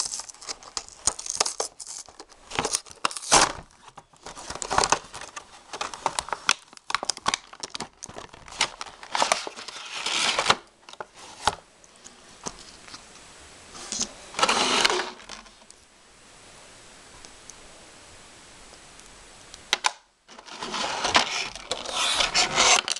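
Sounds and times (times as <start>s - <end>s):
plastic and cardboard crinkling: 0.0s - 13.1s, 13.8s - 15.7s, 19.7s - 22.9s
faint hiss: 8.5s - 22.9s.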